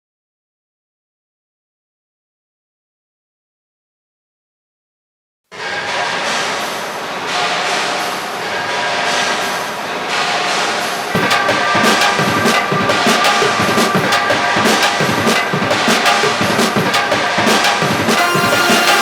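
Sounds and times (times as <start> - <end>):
steady drum beat: 11.2 - 19.0.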